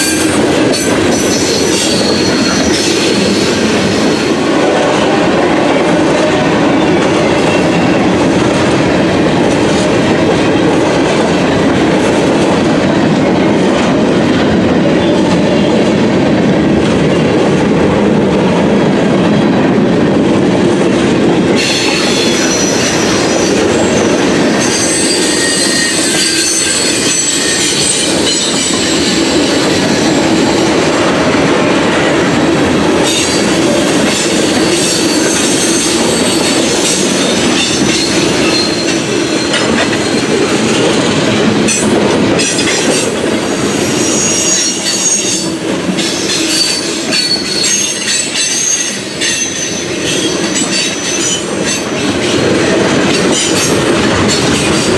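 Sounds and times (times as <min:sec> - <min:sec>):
freight train wheels clacking on rails: 0:00.0 - 0:54.9
high-pitched wheel squeal: 0:21.6 - 0:30.6, 0:43.8 - 0:51.4.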